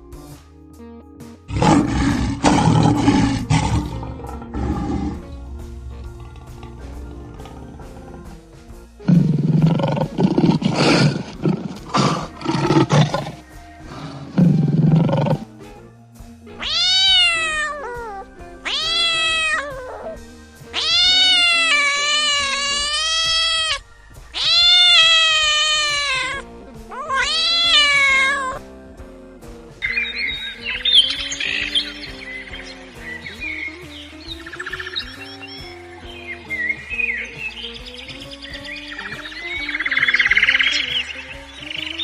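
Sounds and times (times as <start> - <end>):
music: 0.0 - 42.0
big cat roaring: 1.5 - 15.5
meow-like calls: 16.6 - 23.8, 24.4 - 28.6.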